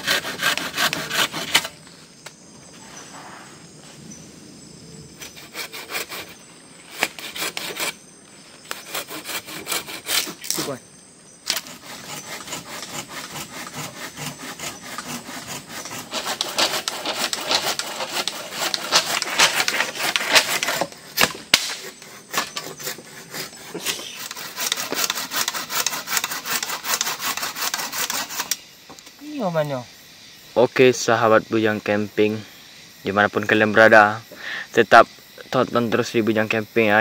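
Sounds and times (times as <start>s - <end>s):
hand saw cutting wood: 0.0s - 1.8s, 5.2s - 8.0s, 8.7s - 10.8s, 11.4s - 28.6s.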